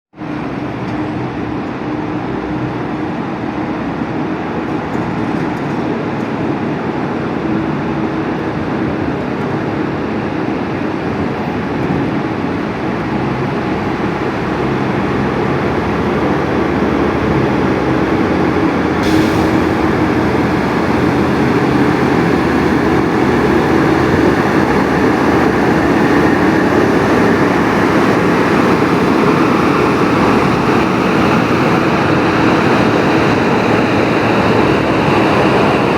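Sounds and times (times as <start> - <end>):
truck engine humming: 12.5 - 35.9.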